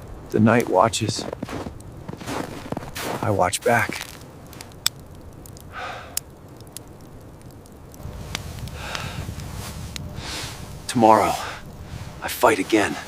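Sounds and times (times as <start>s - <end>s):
sharp clicks: 4.0s - 10.1s
low rumble: 5.1s - 13.0s
person breathing: 5.7s - 6.2s, 8.7s - 9.4s, 10.2s - 10.6s.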